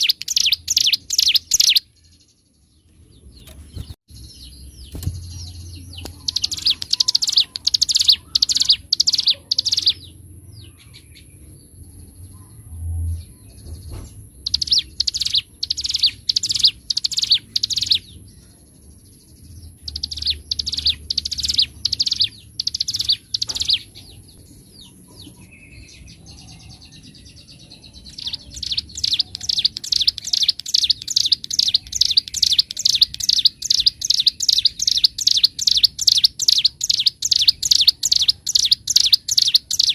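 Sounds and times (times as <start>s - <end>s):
bird singing rapid sharp notes: 0.0s - 12.5s, 13.2s - 39.9s.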